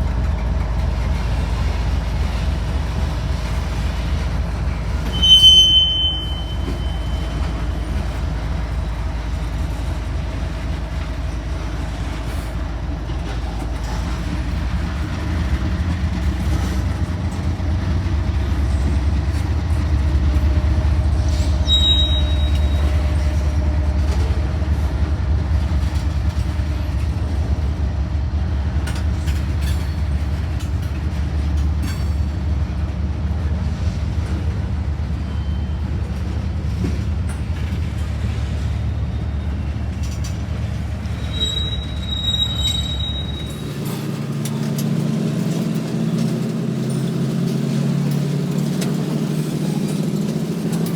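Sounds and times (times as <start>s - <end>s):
diesel train rumbling past: 0.0s - 50.9s
brief high squeal: 5.0s - 7.6s, 21.3s - 23.2s, 41.2s - 43.8s.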